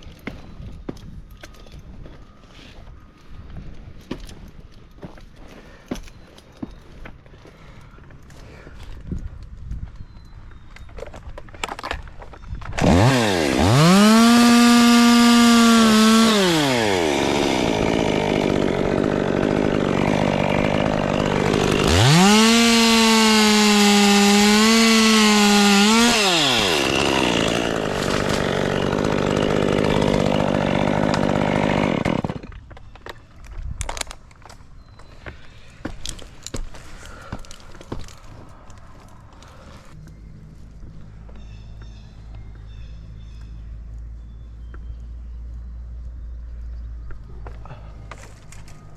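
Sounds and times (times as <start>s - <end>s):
chainsaw revving: 12.8s - 32.5s.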